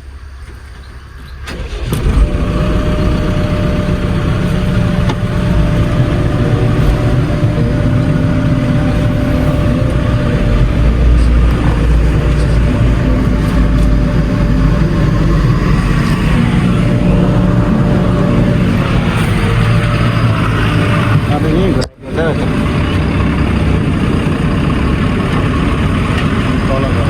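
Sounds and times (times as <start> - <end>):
heavy diesel engine rumbling: 0.0 - 27.0.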